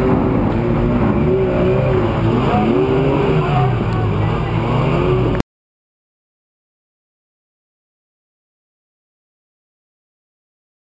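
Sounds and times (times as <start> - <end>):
off-road vehicle engine revving: 0.0 - 5.4.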